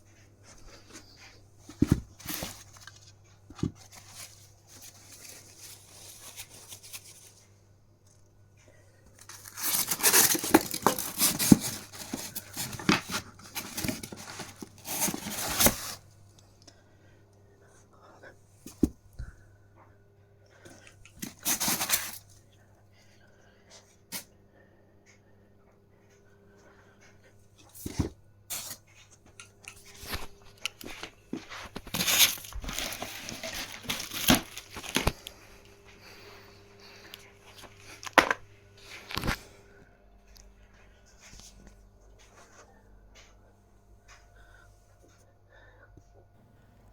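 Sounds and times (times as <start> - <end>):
packaging torn and crumpled: 9.2 - 15.9, 31.7 - 35.3.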